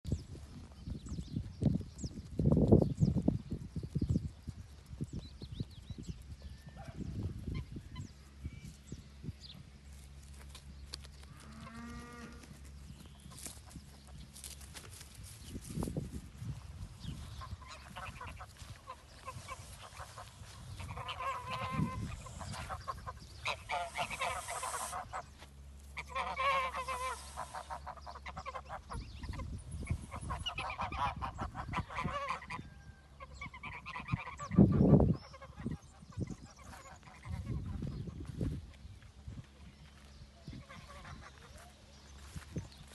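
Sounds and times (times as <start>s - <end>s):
fowl honking: 17.4s - 29.4s, 30.1s - 37.8s, 40.5s - 41.7s.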